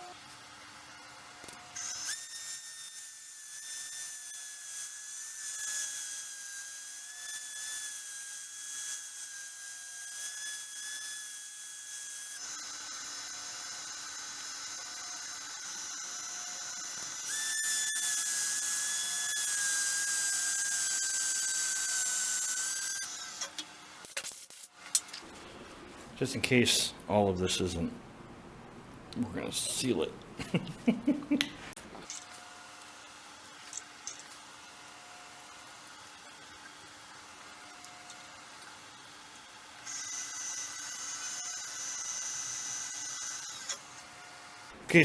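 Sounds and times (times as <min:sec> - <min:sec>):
wood lathe whining: 0:01.2 - 0:23.6, 0:32.0 - 0:44.7.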